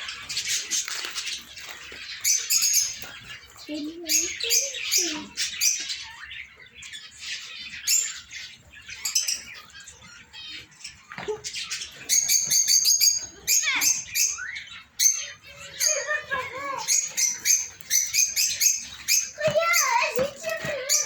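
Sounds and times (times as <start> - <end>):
cage birds chirping and squawking: 0.0 - 21.0
bird rapid repeated chirps: 11.7 - 21.0.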